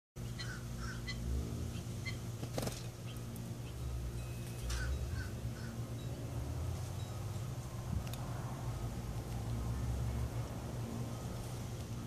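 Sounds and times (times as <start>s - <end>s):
birds chirping: 0.2s - 7.9s
steady low hum: 0.2s - 12.0s.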